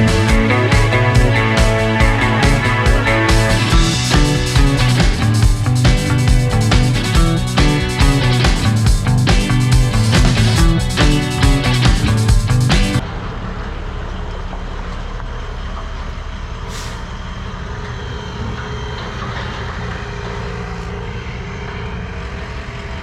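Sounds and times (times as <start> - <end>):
guitar rock music: 0.0 - 13.0
truck diesel engine running: 0.0 - 17.8.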